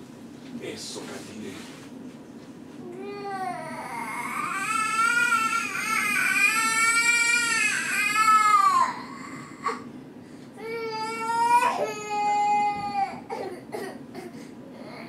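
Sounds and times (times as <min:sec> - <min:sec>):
young child crying: 0:02.8 - 0:09.9, 0:10.6 - 0:14.0, 0:14.7 - 0:15.0.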